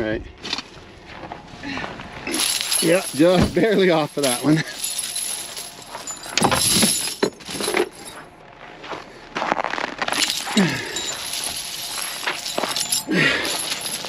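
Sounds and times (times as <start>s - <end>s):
metal chains clinking: 2.3s - 8.2s, 10.1s - 14.0s.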